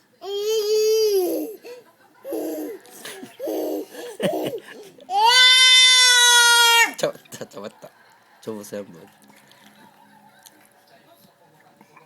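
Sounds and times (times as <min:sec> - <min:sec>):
baby squealing: 0:05.1 - 0:07.0.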